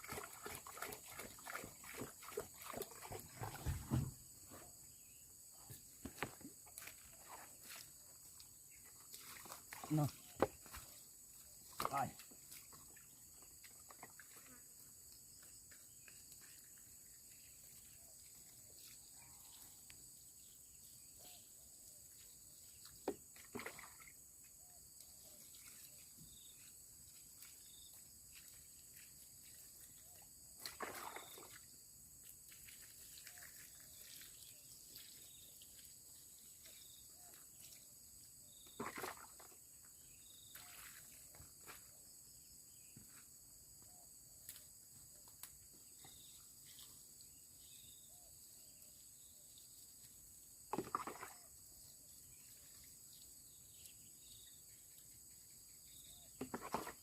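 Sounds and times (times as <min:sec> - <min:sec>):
insect chorus: 0:00.0 - 0:57.0
brief knocks or rustles: 0:03.4 - 0:04.2.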